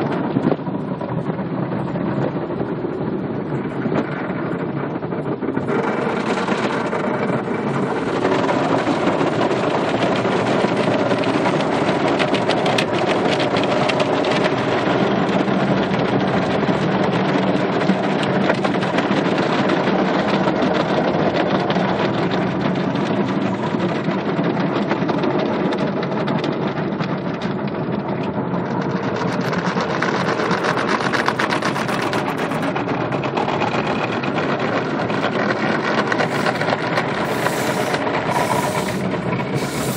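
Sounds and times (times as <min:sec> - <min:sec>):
car wash machine noise: 0:05.5 - 0:23.6, 0:28.8 - 0:39.9
water spraying: 0:36.2 - 0:39.9.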